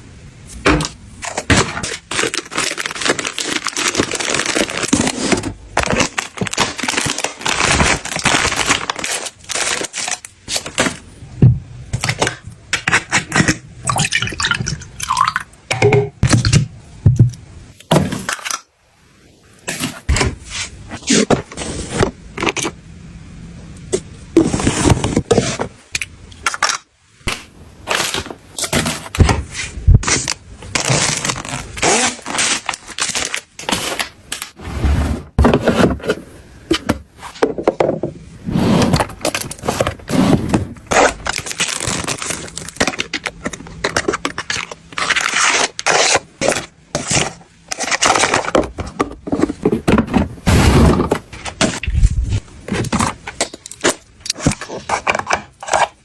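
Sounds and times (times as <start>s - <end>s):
objects scraping and clattering: 24.4s - 25.8s, 32.6s - 56.0s.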